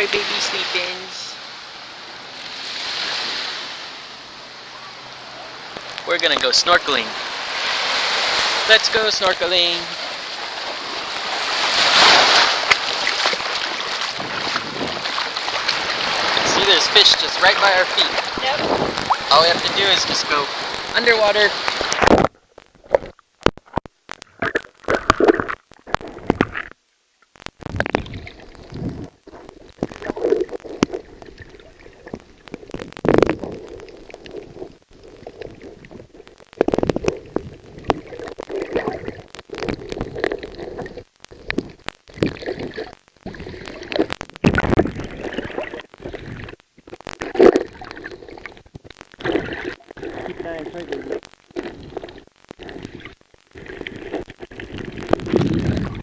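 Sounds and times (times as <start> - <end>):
muffled underwater gurgling: 8.3 - 56.0.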